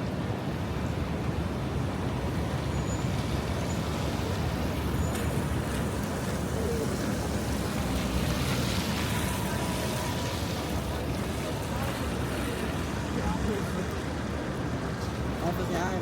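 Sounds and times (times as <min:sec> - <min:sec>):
road traffic: 0:00.0 - 0:16.0
rain falling: 0:03.9 - 0:14.2.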